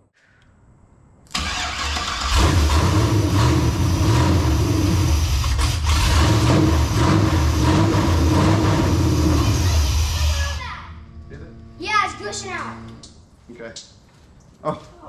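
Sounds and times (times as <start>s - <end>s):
starter motor cranking: 1.3s - 3.0s
car engine running: 2.3s - 13.0s.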